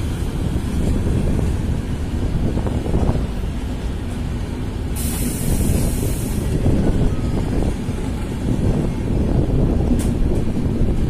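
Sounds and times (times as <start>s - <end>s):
train wheels rumbling on rail: 0.0s - 11.0s
sharp hiss: 4.8s - 6.6s.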